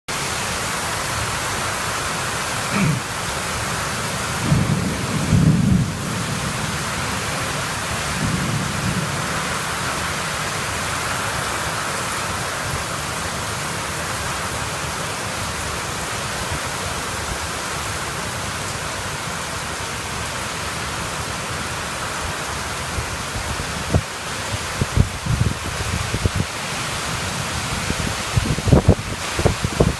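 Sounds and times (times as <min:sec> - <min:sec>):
heavy rain pouring: 0:00.1 - 0:29.9
thunder rumbling: 0:04.4 - 0:09.6.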